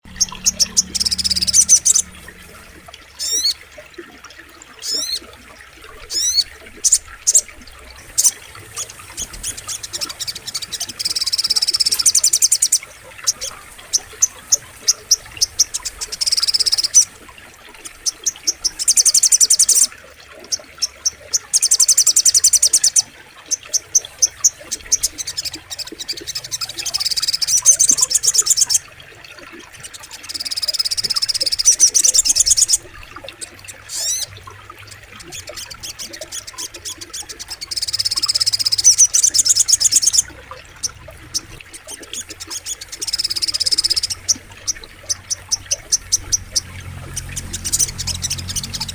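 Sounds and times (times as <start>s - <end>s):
faint running water: 0.0s - 48.9s
bird trilling: 0.1s - 2.6s.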